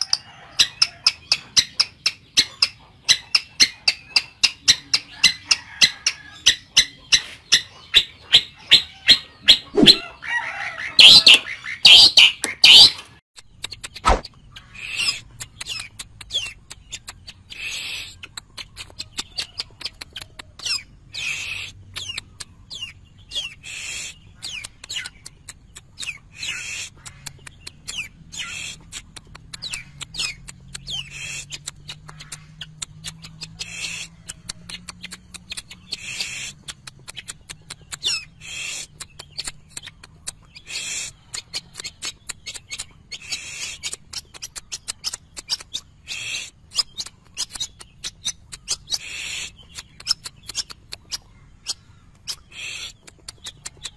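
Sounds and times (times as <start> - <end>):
bird song clicks and whistles: 0.0 - 5.5, 6.5 - 10.0, 11.1 - 53.9
harsh bird call: 5.6 - 13.2.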